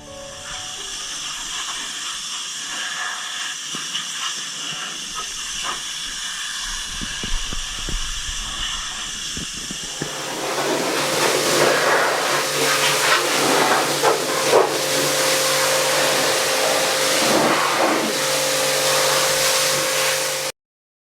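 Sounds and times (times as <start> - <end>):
pressurised spraying hiss: 0.0 - 20.5
machine hum: 5.5 - 20.5.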